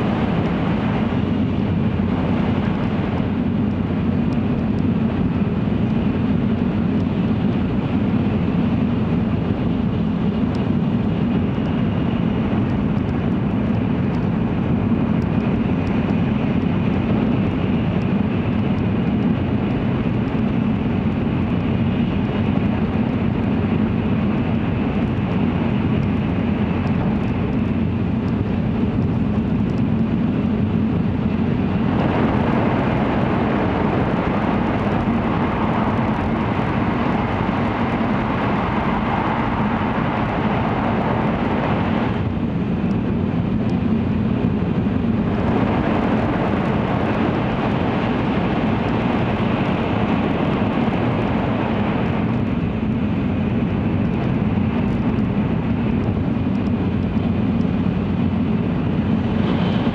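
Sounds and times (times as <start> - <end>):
train cabin low rumble: 55.2 - 59.9.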